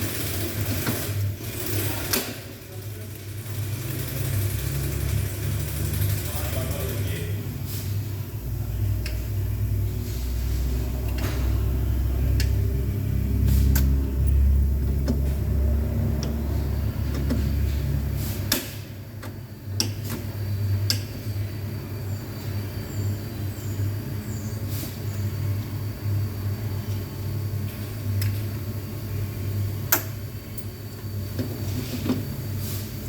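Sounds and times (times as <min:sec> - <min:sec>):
vehicle engine rumble: 0:06.2 - 0:32.7.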